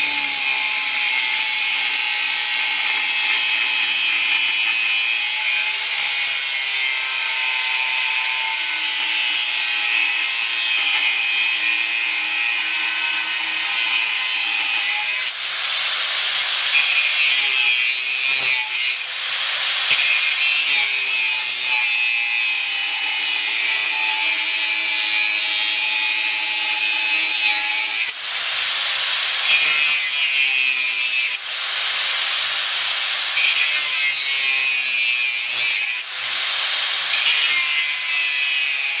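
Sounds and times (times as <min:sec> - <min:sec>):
angle grinder motor whine: 0:00.0 - 0:39.0
grinding steel hiss: 0:00.0 - 0:39.0.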